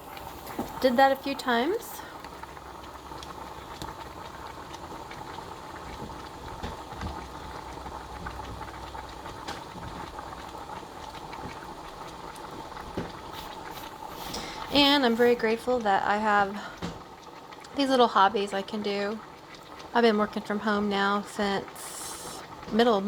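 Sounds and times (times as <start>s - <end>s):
water simmering and bubbling: 0.0s - 23.0s
small ticks and pops: 2.2s - 13.2s.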